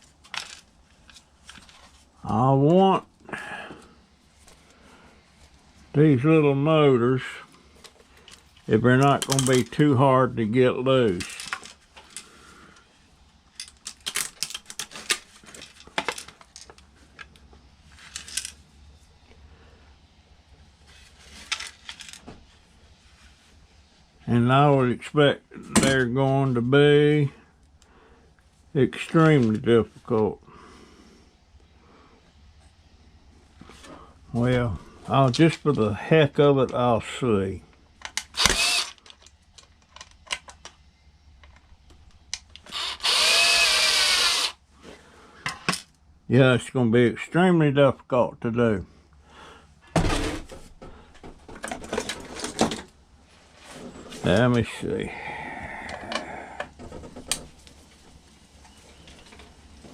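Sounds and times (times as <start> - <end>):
plastic and metal parts clattering: 0.0 - 2.0, 7.8 - 9.8, 11.1 - 12.3, 13.5 - 17.3, 18.0 - 18.6, 21.0 - 22.3, 38.0 - 40.8, 51.3 - 53.0.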